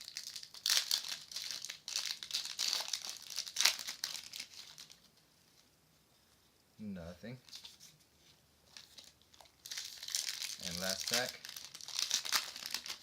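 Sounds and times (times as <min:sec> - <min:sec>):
plastic wrapper crinkling and tearing: 0:00.0 - 0:05.2, 0:08.7 - 0:13.0.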